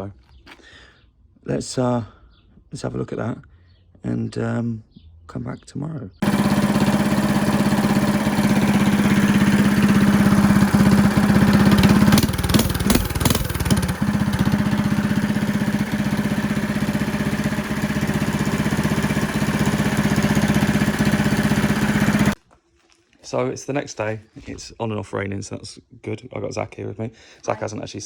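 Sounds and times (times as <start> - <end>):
exhaust crackles: 6.2 - 22.4
go-kart engine running: 6.2 - 22.4.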